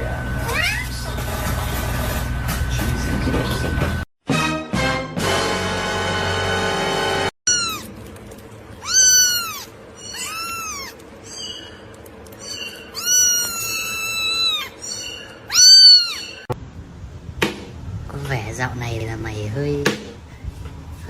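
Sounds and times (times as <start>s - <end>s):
cat meowing: 0.5s - 0.9s, 7.5s - 7.9s, 8.8s - 11.0s, 12.9s - 14.8s, 15.5s - 16.5s.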